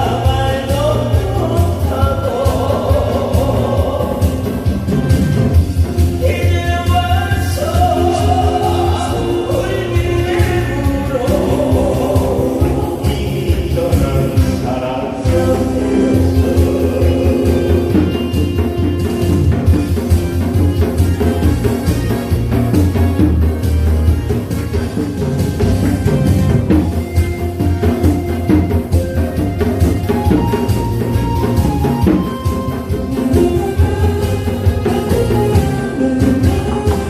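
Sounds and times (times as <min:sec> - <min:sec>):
person singing: 0:00.0 - 0:05.4, 0:06.1 - 0:19.7, 0:30.0 - 0:37.0
backing track with bass beat: 0:00.0 - 0:37.0.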